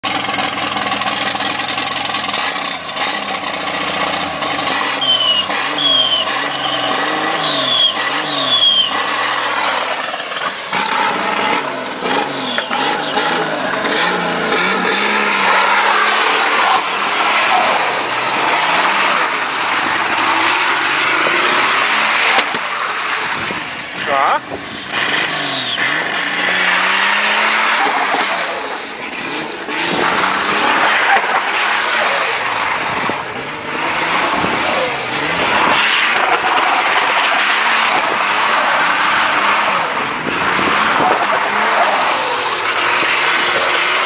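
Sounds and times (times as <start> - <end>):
car engine revving: 0.0 - 44.0
turbo whistle: 4.8 - 9.2.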